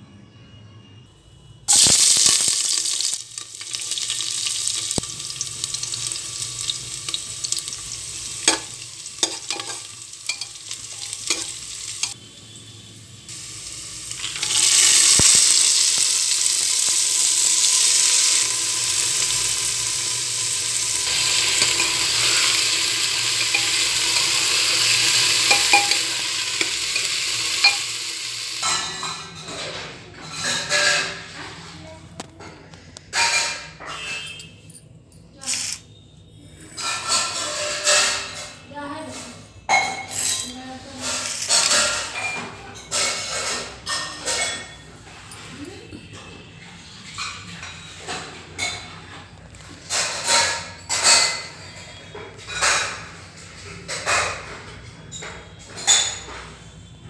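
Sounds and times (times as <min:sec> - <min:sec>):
oil sizzling in a pot: 0:01.7 - 0:29.2, 0:39.7 - 0:44.5
spatula scraping metal pot: 0:05.7 - 0:12.2, 0:20.6 - 0:28.7.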